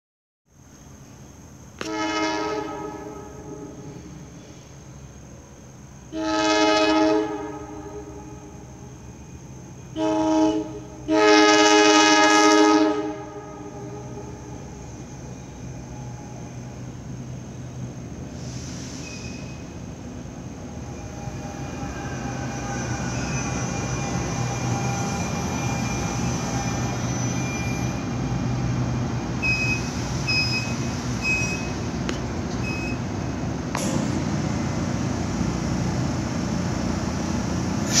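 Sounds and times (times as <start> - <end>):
electric train humming: 0.6 - 38.0
short high beeps: 32.6 - 33.0
sharp knock: 33.8 - 34.2.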